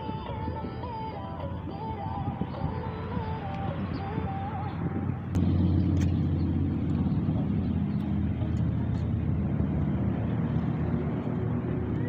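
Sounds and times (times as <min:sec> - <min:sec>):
motorcycle engine running: 0:01.5 - 0:12.0
wind noise rushing: 0:01.6 - 0:07.3.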